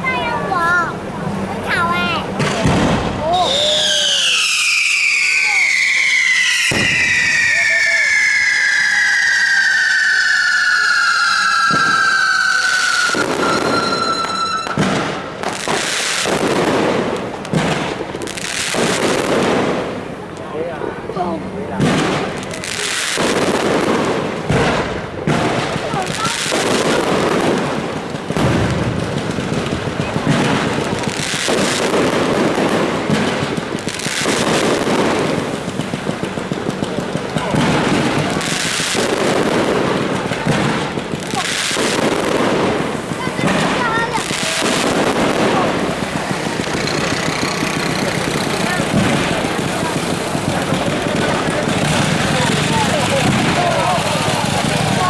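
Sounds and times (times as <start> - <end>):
fireworks bangs: 0.0 - 55.0
fireworks crackling: 0.0 - 55.0
firework whistle falling in pitch: 3.3 - 15.4.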